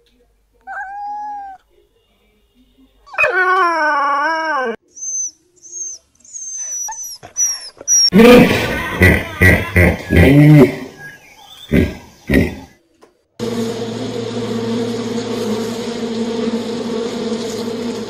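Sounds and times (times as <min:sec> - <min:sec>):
dog whimpering: 0:00.7 - 0:01.6, 0:03.1 - 0:08.2
loud rough sound: 0:08.2 - 0:10.0.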